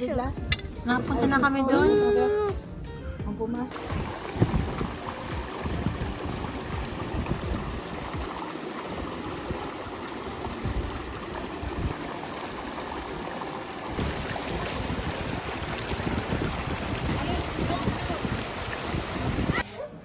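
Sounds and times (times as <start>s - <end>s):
wind buffeting microphone: 3.8s - 12.2s, 13.9s - 19.7s.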